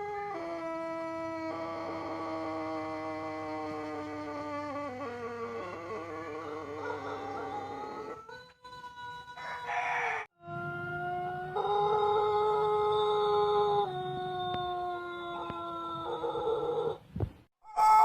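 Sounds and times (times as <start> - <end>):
rooster crowing: 0.0 - 10.3, 11.6 - 17.0, 17.7 - 18.0.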